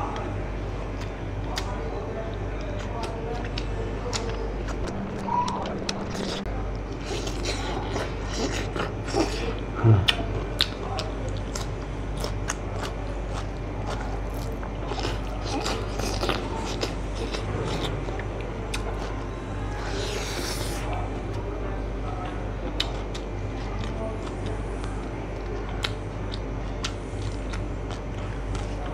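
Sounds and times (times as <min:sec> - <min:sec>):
steady low hum: 0:00.0 - 0:28.9
person chewing: 0:02.8 - 0:19.2, 0:22.7 - 0:28.9.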